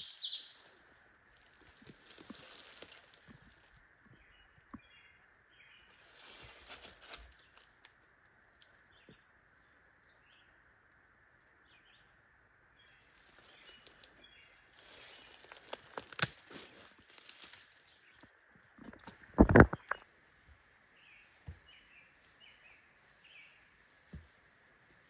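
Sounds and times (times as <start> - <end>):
bird chirps: 0.0 - 0.8
footsteps rustling through undergrowth: 0.2 - 3.8, 5.9 - 7.8, 13.0 - 18.0
twig snapping: 14.8 - 17.7.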